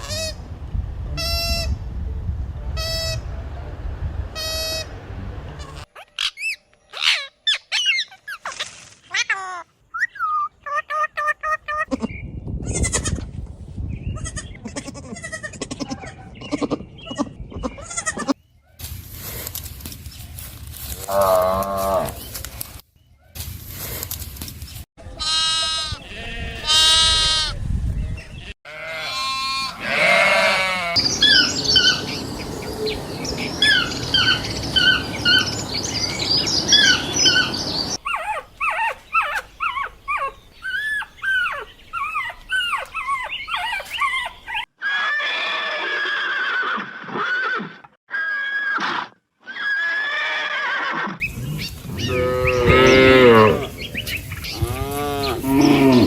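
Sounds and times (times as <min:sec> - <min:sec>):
bleating calls: 0:25.2 - 0:27.5, 0:28.4 - 0:38.0, 0:51.4 - 0:53.8, 0:54.5 - 0:56.0
quick chirping calls: 0:31.0 - 0:44.6
cattle mooing: 0:51.4 - 0:53.9, 0:54.5 - 0:56.0.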